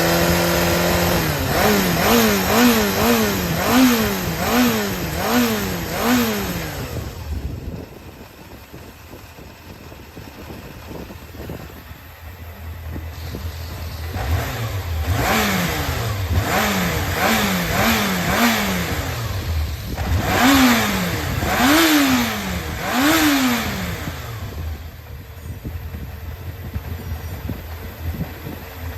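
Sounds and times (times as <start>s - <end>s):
motorcycle engine idling and revving: 0.0s - 28.9s.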